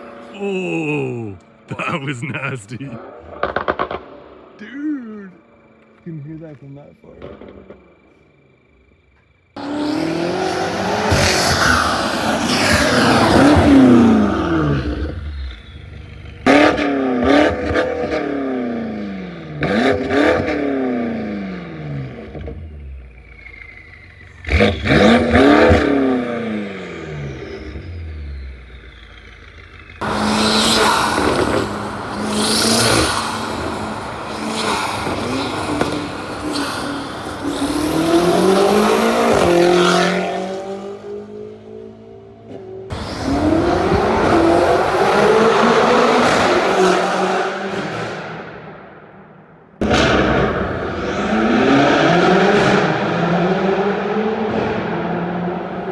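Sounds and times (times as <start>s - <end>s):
car engine revving: 9.6s - 48.8s.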